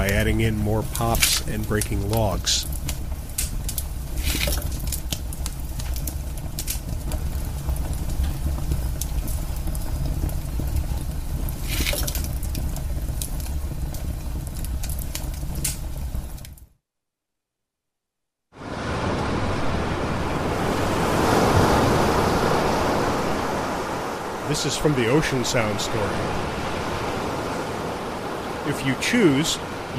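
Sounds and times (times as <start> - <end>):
burning logs popping: 0.0 - 16.7
fire crackling: 0.0 - 16.8.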